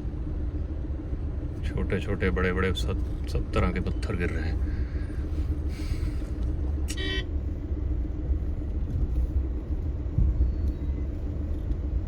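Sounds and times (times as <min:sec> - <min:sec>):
car rumbling on the move: 0:01.0 - 0:12.0
car horn beep: 0:06.9 - 0:07.3.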